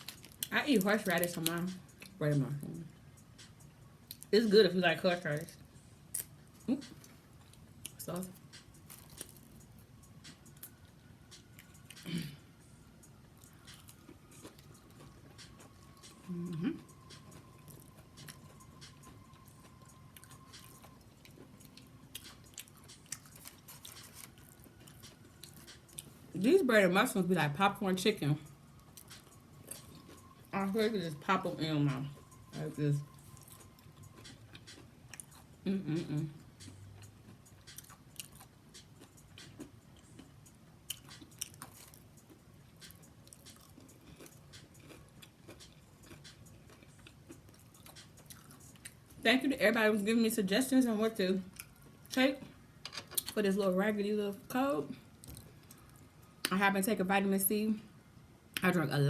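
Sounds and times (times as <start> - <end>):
chewing with wet mouth clicks: 13.4 - 26.1, 33.1 - 35.6, 36.5 - 49.0, 51.5 - 51.8, 55.2 - 56.0.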